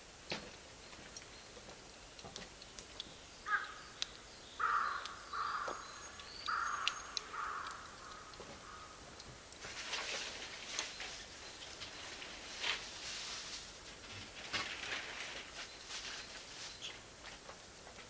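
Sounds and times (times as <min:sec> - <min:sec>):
burning charcoal crackling: 0:00.0 - 0:18.0
bird calling: 0:03.0 - 0:09.0.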